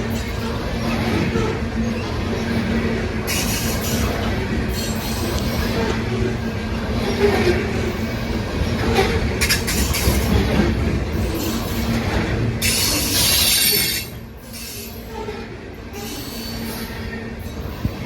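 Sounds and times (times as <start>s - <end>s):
train wheels rumbling on rail: 0.0s - 18.0s
sharp clacks of train wheels: 6.8s - 17.0s.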